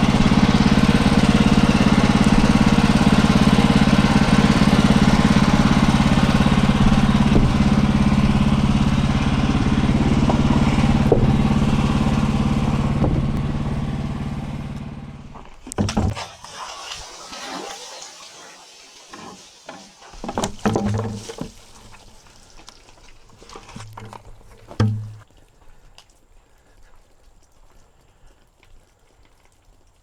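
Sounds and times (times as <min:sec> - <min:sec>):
sawmill engine and blade running: 0:00.0 - 0:22.0
sharp knocks: 0:10.1 - 0:11.6.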